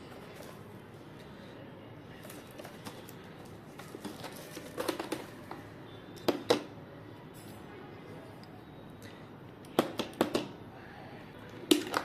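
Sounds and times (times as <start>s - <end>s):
parts and packaging clicks: 2.2s - 6.8s, 9.6s - 10.6s, 11.5s - 12.0s.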